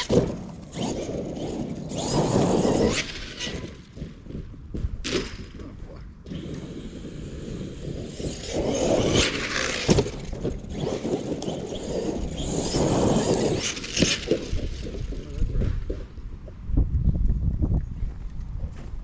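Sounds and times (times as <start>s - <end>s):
toy truck tyres churning snow: 0.0s - 4.3s, 6.3s - 16.1s.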